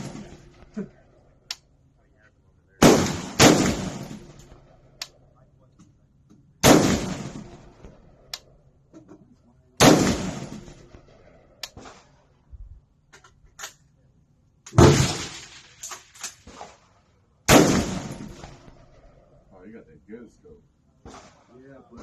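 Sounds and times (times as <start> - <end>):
rifle shots: 0.0 - 0.7, 2.8 - 5.2, 6.6 - 8.3, 9.8 - 12.3, 14.7 - 19.1.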